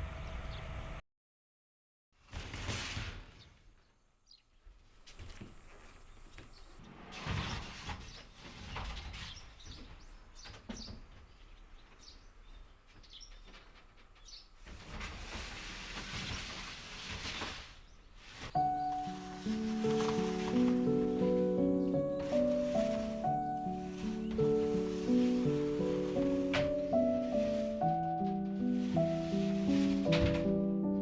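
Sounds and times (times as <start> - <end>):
birds chirping: 4.2 - 6.9, 7.5 - 14.6, 17.8 - 30.0
movement and handling noise: 12.7 - 31.0.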